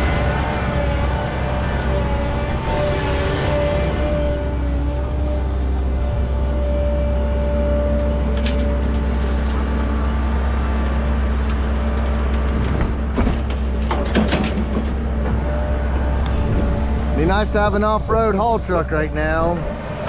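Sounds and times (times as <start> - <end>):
diesel truck engine running: 0.0 - 20.0
knocks and rattles: 12.0 - 15.6.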